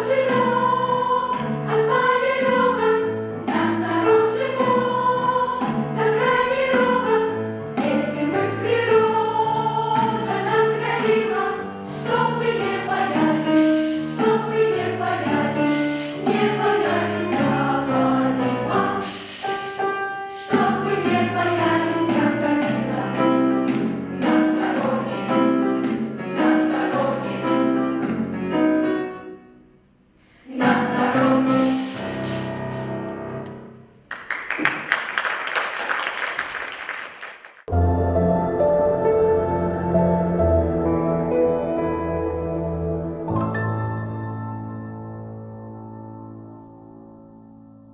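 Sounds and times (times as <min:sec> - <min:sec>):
children's choir singing: 0:00.0 - 0:28.1, 0:30.4 - 0:33.4.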